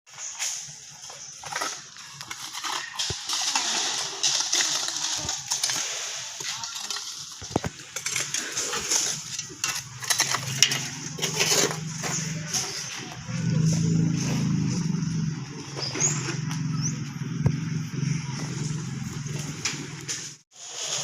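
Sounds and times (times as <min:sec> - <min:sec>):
stones and gravel clinking: 0:00.2 - 0:14.8
low engine hum: 0:09.8 - 0:20.4.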